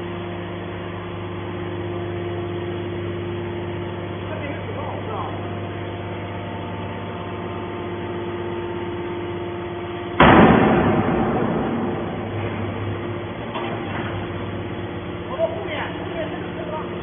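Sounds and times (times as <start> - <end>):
baler power unit humming: 0.0 - 17.0
loud machine crash: 10.2 - 14.2.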